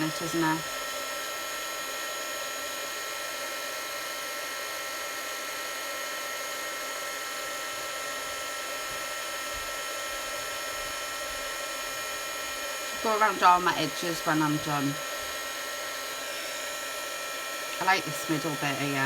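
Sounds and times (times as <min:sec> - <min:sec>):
heat tool blowing with whine: 0:00.0 - 0:19.0.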